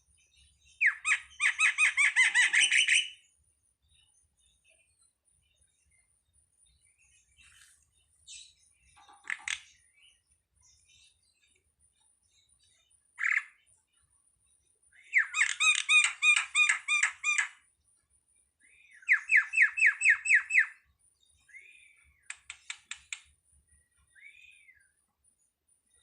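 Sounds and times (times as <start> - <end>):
starling calling: 0.8 - 3.2, 15.1 - 17.6, 19.1 - 20.8.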